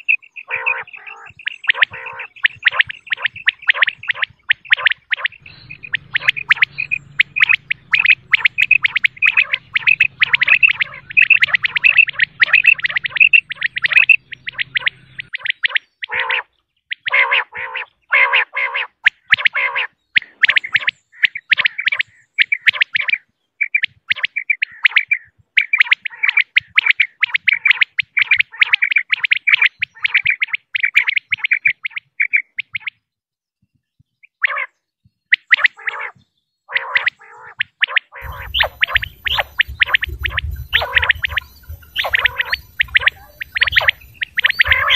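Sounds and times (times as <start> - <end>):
quail calling: 0.0 - 33.0, 34.4 - 44.9
faint low hum: 38.2 - 44.9.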